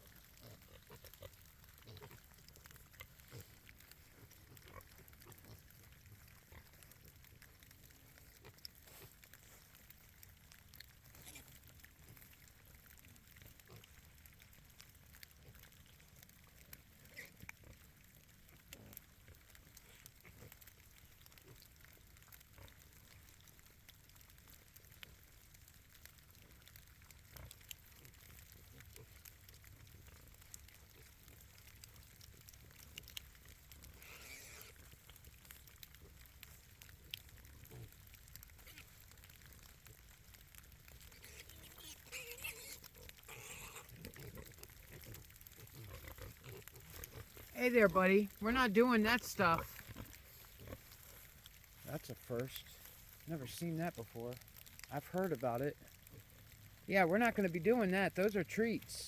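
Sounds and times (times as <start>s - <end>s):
pigs grunting: 0.0s - 10.0s, 11.0s - 12.4s, 17.0s - 17.9s, 27.3s - 40.0s, 41.0s - 54.1s.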